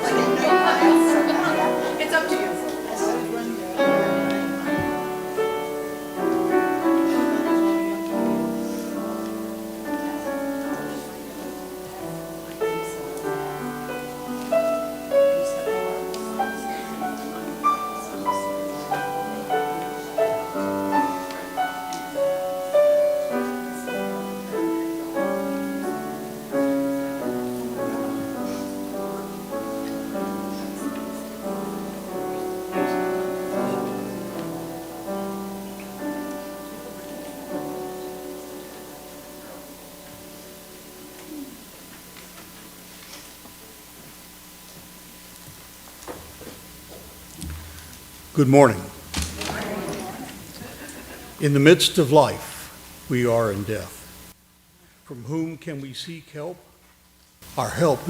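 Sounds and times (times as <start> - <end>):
solo piano music: 0.0 - 41.9.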